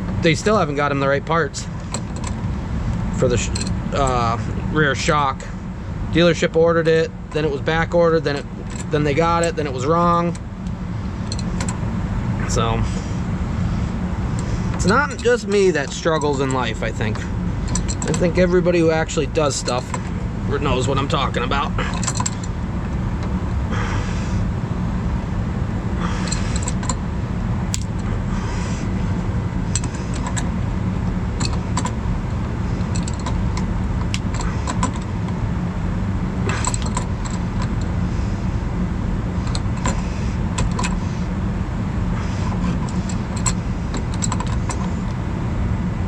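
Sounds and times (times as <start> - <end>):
low mechanical hum: 0.0 - 46.0
keys jingling: 17.6 - 18.3, 21.8 - 22.6, 26.2 - 27.0, 32.8 - 33.6, 36.5 - 37.9, 42.7 - 44.9
metal clicks and scrapes: 17.6 - 18.3, 29.7 - 30.5, 31.4 - 32.0, 32.8 - 35.1.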